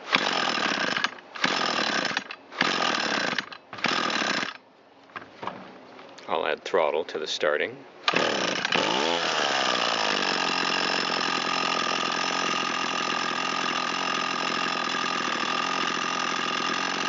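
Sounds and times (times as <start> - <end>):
string trimmer engine idling: 0.1 - 4.6, 8.1 - 17.0.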